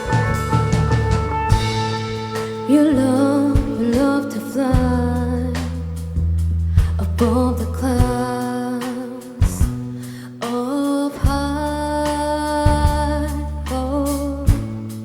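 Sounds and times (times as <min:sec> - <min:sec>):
rock band playing: 0:00.0 - 0:04.2
drum hits: 0:00.0 - 0:05.8.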